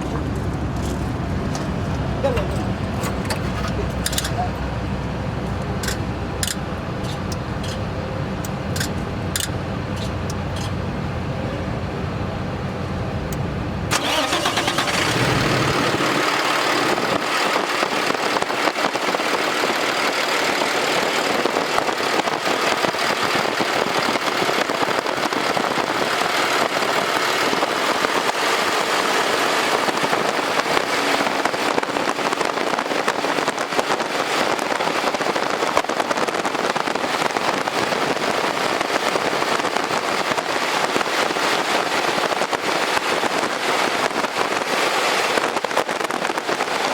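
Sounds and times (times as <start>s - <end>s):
diesel truck engine idling: 0.0s - 21.4s.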